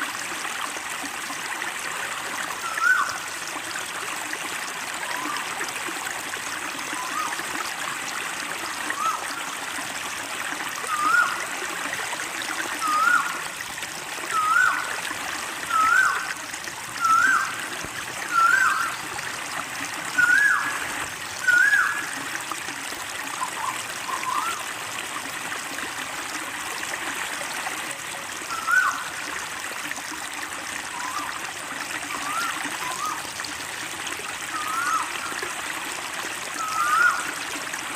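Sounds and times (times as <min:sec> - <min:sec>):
running water: 0:00.0 - 0:37.9
bird calling: 0:02.6 - 0:03.2, 0:10.8 - 0:11.4, 0:12.8 - 0:13.4, 0:14.3 - 0:14.9, 0:15.7 - 0:16.4, 0:17.0 - 0:17.6, 0:18.3 - 0:19.1, 0:20.1 - 0:20.8, 0:21.4 - 0:22.2, 0:23.4 - 0:24.6, 0:28.5 - 0:29.1, 0:32.2 - 0:33.2, 0:34.5 - 0:35.4, 0:36.6 - 0:37.3.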